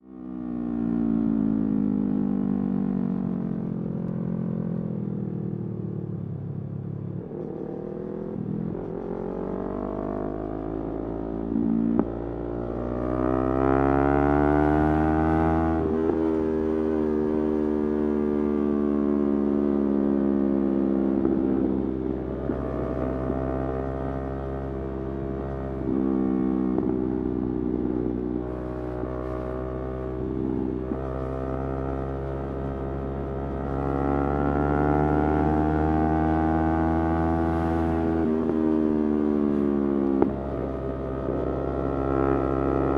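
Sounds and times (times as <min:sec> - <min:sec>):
motorcycle engine revving: 0:28.5 - 0:42.9.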